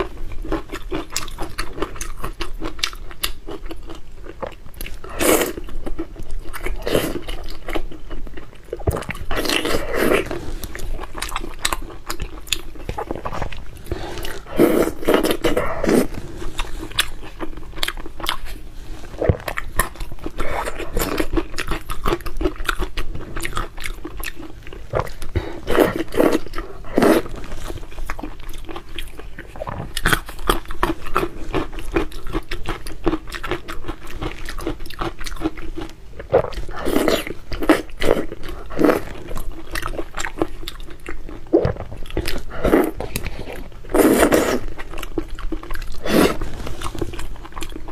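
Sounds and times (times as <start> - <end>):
wet chewing mouth noises: 6.4 - 47.9.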